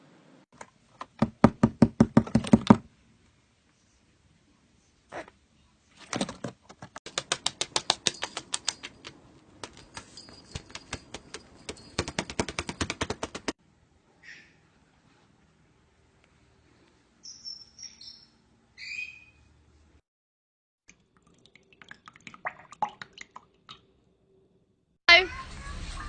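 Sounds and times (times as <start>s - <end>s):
rapid sharp taps: 7.1s - 13.6s.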